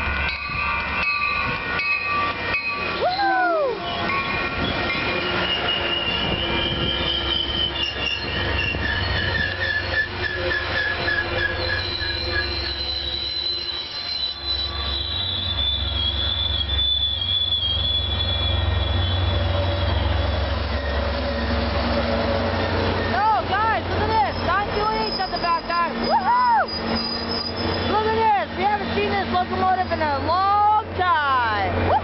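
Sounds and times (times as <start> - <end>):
train rumbling on rails: 0.0 - 32.0
wheel squeal: 3.9 - 23.4, 24.1 - 28.4.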